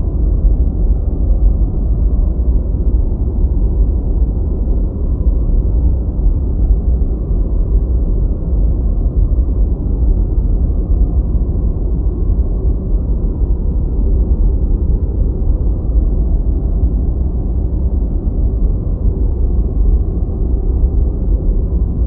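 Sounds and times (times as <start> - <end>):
deep muffled white noise: 0.0 - 22.0.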